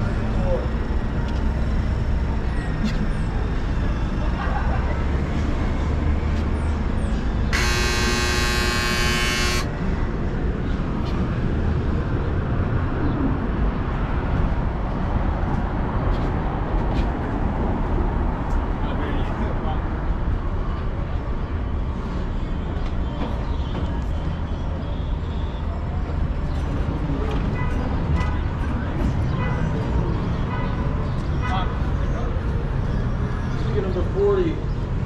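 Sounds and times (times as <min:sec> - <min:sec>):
vehicle horn blaring: 0:07.6 - 0:09.7.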